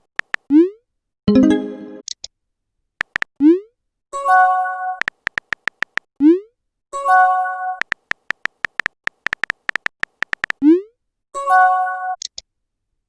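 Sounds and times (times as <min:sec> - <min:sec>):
synthetic chime chord: 0:01.3 - 0:02.0.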